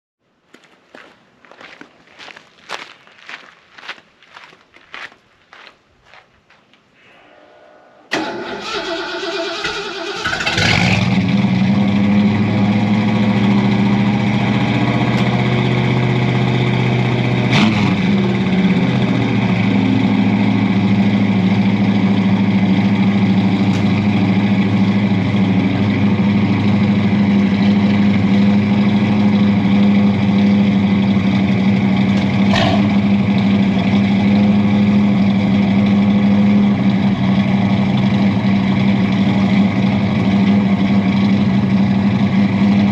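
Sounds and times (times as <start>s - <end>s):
pickup engine cranking and idling: 8.1s - 42.9s.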